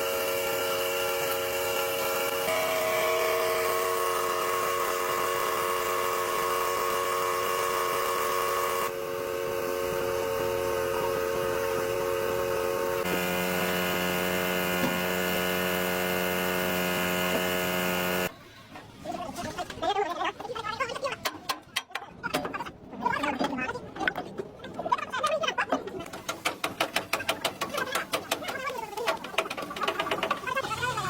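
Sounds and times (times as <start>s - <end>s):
electric motor whine: 0.0s - 18.3s.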